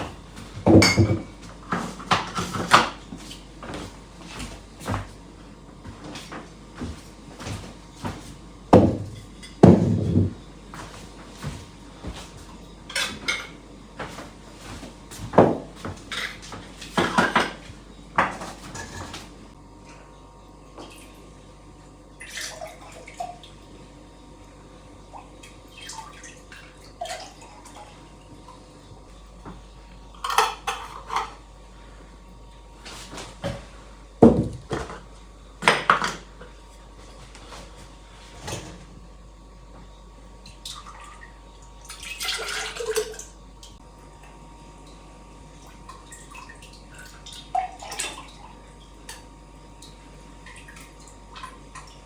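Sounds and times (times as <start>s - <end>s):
kitchenware clattering: 0.6s - 2.9s, 8.8s - 10.4s.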